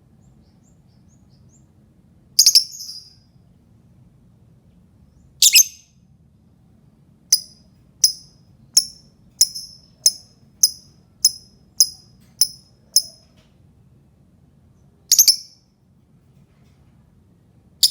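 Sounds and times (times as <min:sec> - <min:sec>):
lovebird high chirps: 0:02.4 - 0:03.2, 0:05.4 - 0:06.0, 0:07.3 - 0:13.3, 0:15.1 - 0:15.6
lovebird harsh call: 0:05.4 - 0:05.9.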